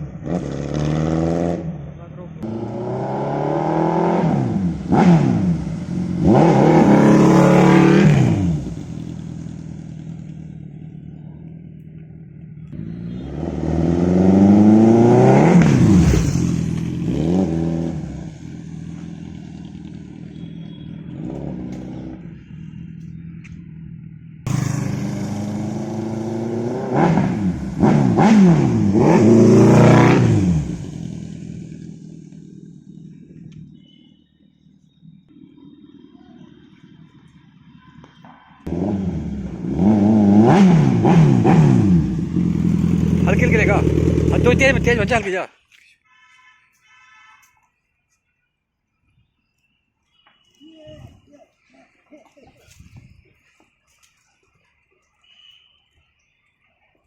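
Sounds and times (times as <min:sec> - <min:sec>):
motorcycle engine revving: 0:00.0 - 0:34.0, 0:38.6 - 0:45.3.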